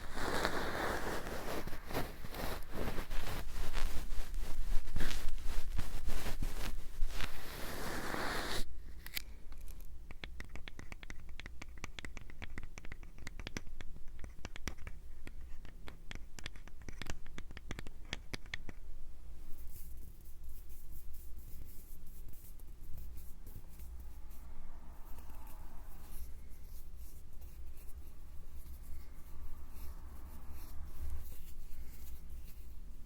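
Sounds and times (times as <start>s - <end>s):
rustling close to microphone: 0.0s - 8.7s.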